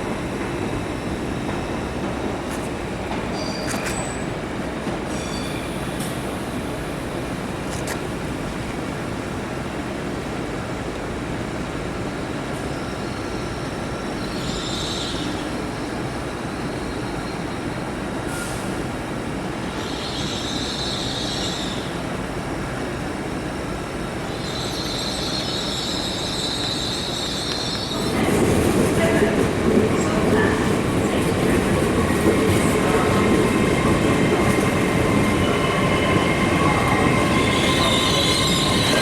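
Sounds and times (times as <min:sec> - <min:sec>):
train rumbling: 0:00.0 - 0:39.0
wheels squealing on rails: 0:03.2 - 0:07.2, 0:12.6 - 0:19.0, 0:19.6 - 0:22.1, 0:24.0 - 0:39.0.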